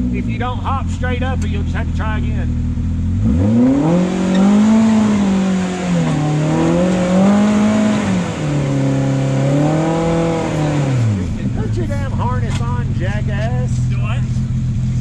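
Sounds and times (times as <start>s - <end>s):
utility vehicle engine revving: 0.0s - 15.0s.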